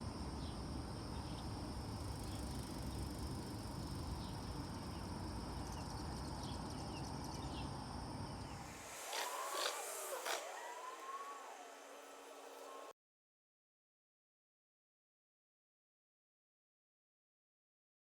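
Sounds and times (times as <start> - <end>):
insect chirring: 1.2 - 12.9.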